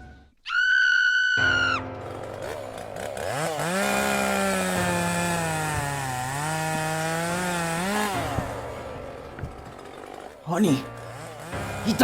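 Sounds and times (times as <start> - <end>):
chainsaw engine revving: 1.8 - 12.0.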